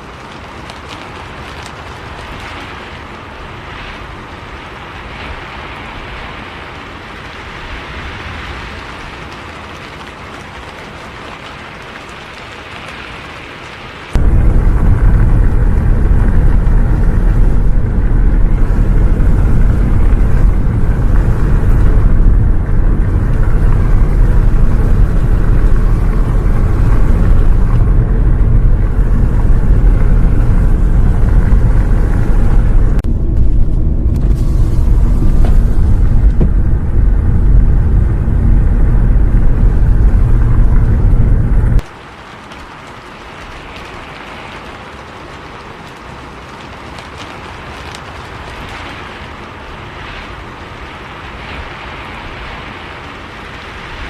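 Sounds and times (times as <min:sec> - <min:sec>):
rushing rain noise: 0:00.0 - 0:54.0
bus rumbling: 0:14.1 - 0:41.8.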